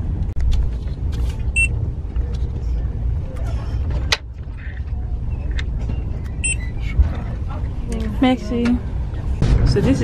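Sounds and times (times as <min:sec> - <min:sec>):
train rumble inside carriage: 0:00.0 - 0:10.0
ticket scanner beep: 0:06.4 - 0:06.7.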